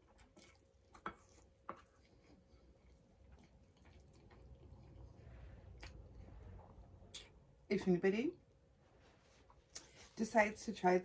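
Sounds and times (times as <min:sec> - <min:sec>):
faint chewing: 0:00.0 - 0:07.4.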